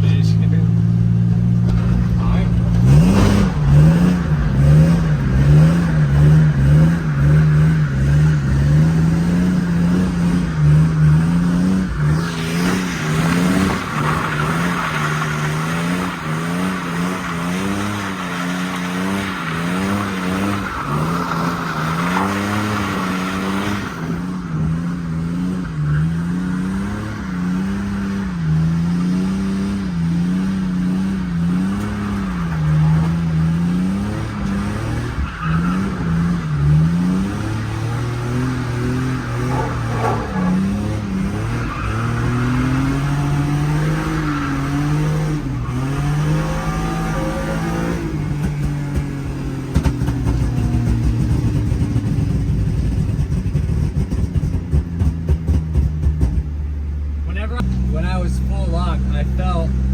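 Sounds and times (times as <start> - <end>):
car engine revving: 0.0 - 59.9
tire hiss on wet road: 12.0 - 24.3.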